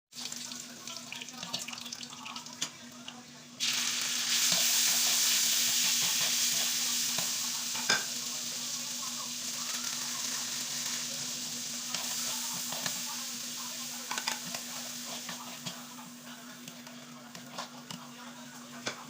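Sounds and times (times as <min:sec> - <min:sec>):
food sizzling in a pan: 0:00.1 - 0:19.0.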